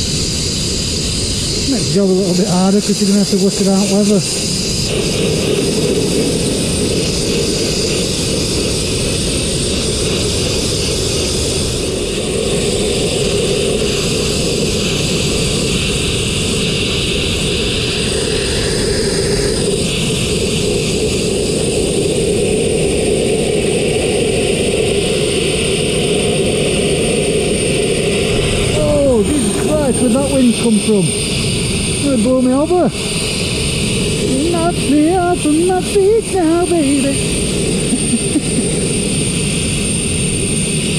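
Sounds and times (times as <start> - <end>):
blast nozzle hissing: 0.0 - 22.0
air compressor engine running: 0.0 - 40.9.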